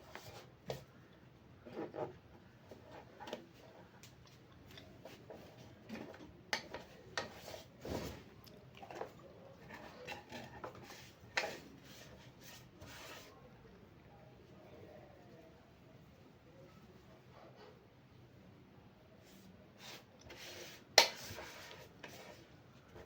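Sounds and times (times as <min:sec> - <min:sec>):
rubbing and scraping: 0:19.8 - 0:23.0.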